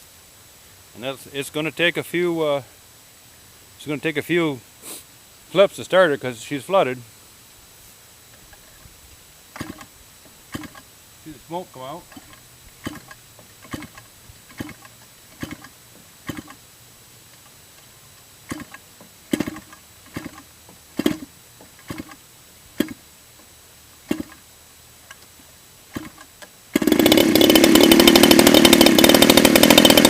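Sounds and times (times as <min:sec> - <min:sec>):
engine being flipped over by hand: 0:09.6 - 0:09.9, 0:10.5 - 0:10.8, 0:12.1 - 0:16.6, 0:18.5 - 0:22.2, 0:22.8 - 0:23.0, 0:24.1 - 0:24.4, 0:25.9 - 0:30.0
two-stroke engine running loudly: 0:26.0 - 0:30.0.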